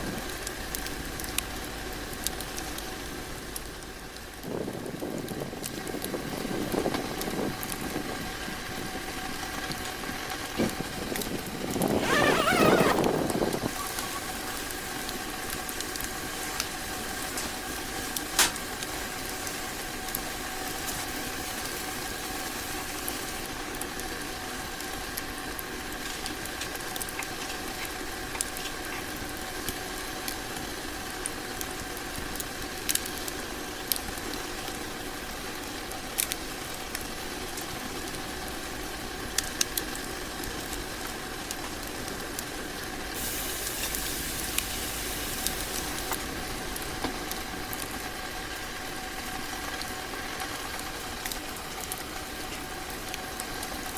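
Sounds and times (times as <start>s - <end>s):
wood fire burning in stove: 0.0s - 12.1s, 12.9s - 53.9s
fire crackles and pops: 0.0s - 53.9s
bright hiss: 11.9s - 23.5s, 43.2s - 46.6s.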